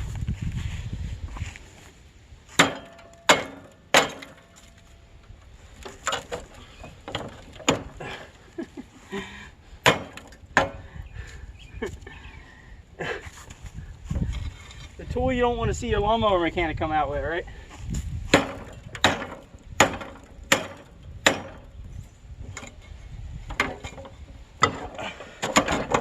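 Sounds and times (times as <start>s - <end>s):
hatchet striking rusty metal: 2.5s - 4.9s, 5.8s - 8.1s, 9.8s - 10.9s, 18.3s - 21.9s, 23.5s - 26.0s.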